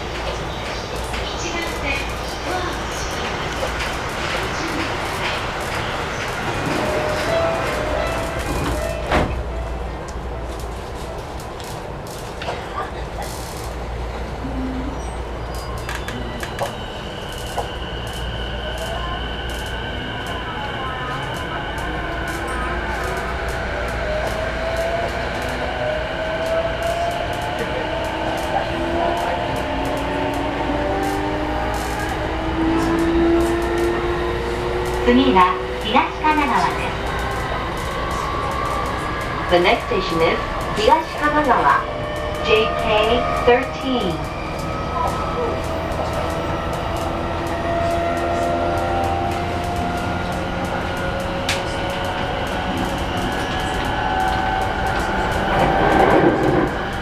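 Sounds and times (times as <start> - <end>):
wheels rumbling on rail: 0.0 - 57.0.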